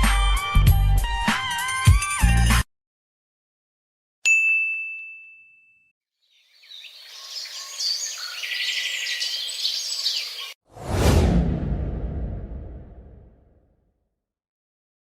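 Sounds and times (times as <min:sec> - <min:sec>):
bright bell ding: 0:04.3 - 0:05.9
birds chirping and twittering: 0:06.2 - 0:10.6.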